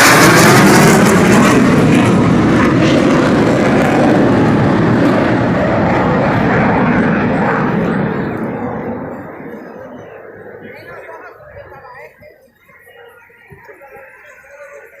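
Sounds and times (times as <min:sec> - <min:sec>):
aircraft flying past: 0:00.0 - 0:11.0.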